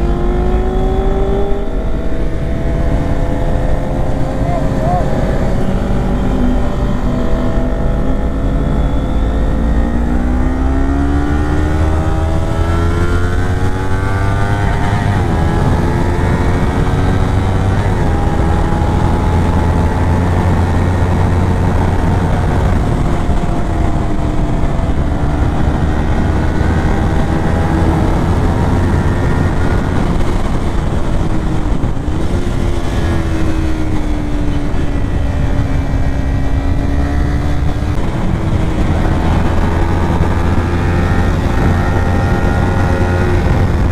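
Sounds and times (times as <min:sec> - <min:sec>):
motorcycle engine accelerating: 0:00.0 - 0:43.9
wind noise: 0:00.0 - 0:43.9.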